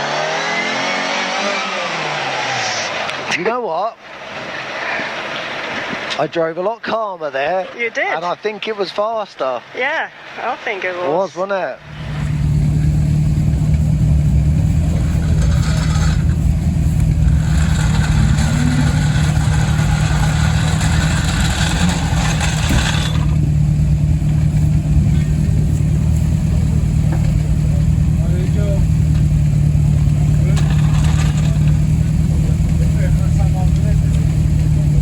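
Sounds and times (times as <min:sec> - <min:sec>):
car engine running: 0:11.8 - 0:35.0
tyre road noise hiss: 0:11.8 - 0:35.0.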